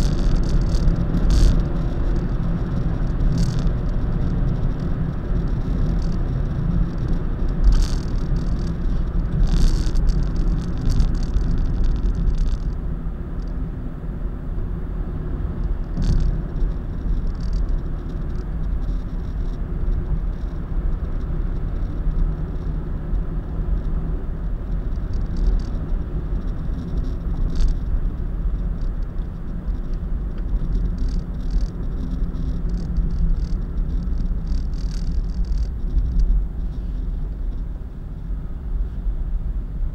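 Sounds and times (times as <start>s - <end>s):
rattles and clicks in car cabin: 0.0s - 13.7s, 15.2s - 39.1s
car road and engine rumble: 0.0s - 39.9s.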